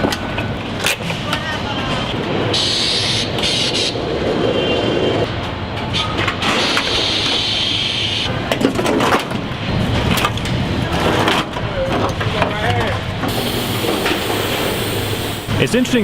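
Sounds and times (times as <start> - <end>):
factory machinery running: 0.1 - 16.0
hiss: 13.3 - 15.6.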